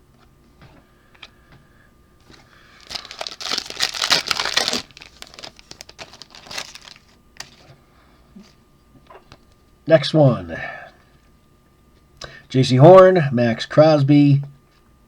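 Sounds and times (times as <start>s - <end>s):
plastic wrapper crinkling: 2.7s - 7.6s.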